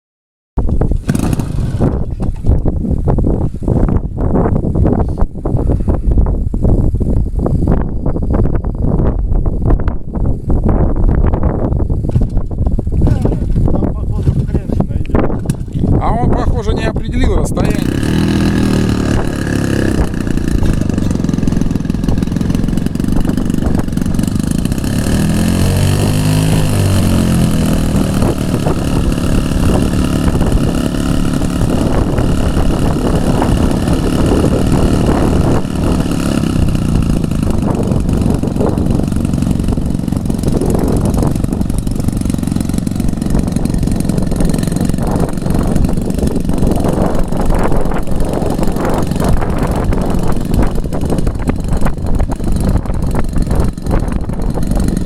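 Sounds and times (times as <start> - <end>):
airplane engine running: 0.9 - 2.5, 13.1 - 55.0.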